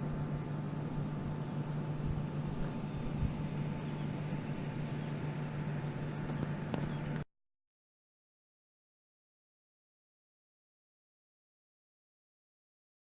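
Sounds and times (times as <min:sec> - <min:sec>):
low mechanical hum: 0:00.0 - 0:07.3.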